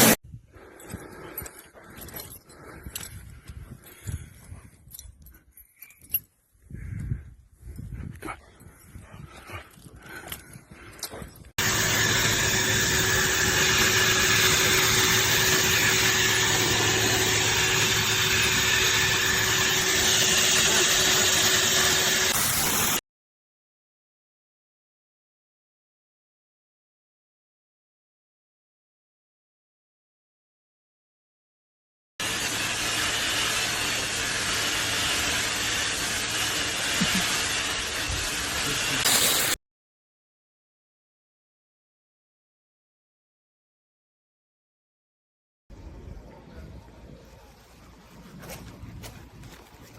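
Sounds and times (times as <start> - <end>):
low motor hum: 11.4 - 22.4
pet dryer blower rushing air: 11.6 - 23.0, 32.2 - 39.6.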